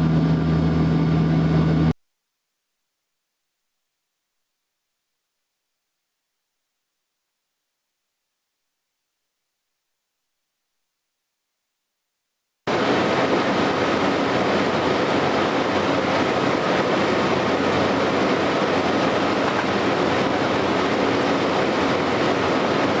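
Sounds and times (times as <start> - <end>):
loud engine and rushing noise: 0.0 - 1.9, 12.7 - 23.0
faint steady hum: 0.0 - 23.0.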